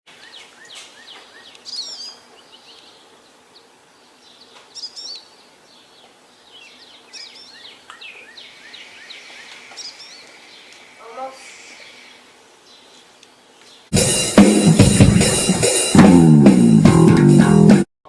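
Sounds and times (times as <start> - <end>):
quick bird chirps: 0.1 - 13.0
songbird warbling: 0.1 - 13.9.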